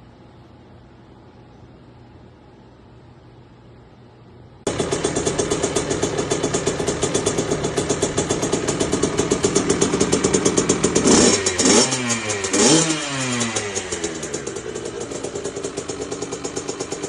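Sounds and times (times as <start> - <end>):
dirt bike engine idling: 4.7 - 17.0
dirt bike engine revving: 4.7 - 17.0.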